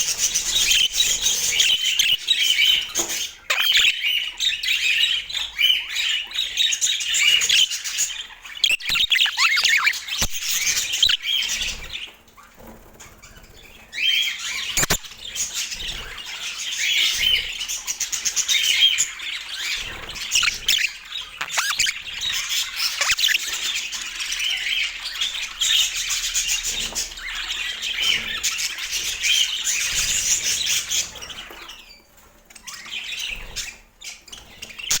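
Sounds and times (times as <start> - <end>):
budgerigar chirps and squawks: 3.5 - 5.0, 8.6 - 11.4, 14.8 - 15.2, 19.8 - 23.7.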